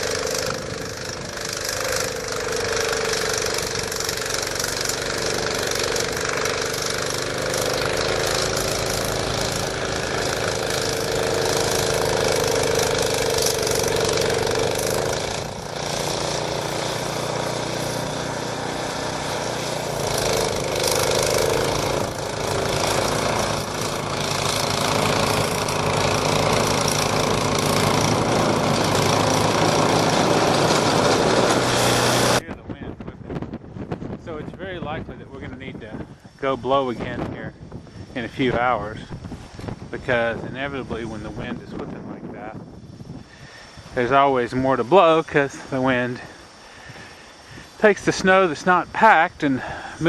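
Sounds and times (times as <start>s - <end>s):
snowblower engine running: 0.0s - 32.4s, 43.2s - 50.0s.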